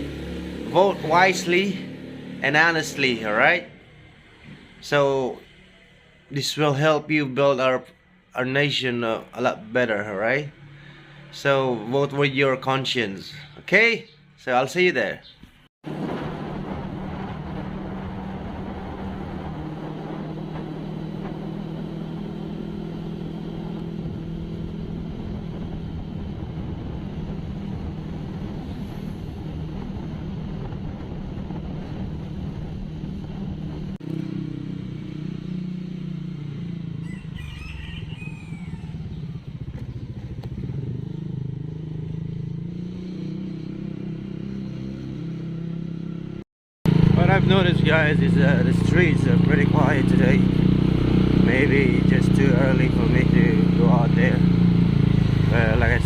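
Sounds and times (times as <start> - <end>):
vehicle engine running: 15.9 - 37.3, 38.1 - 44.5, 45.3 - 56.0.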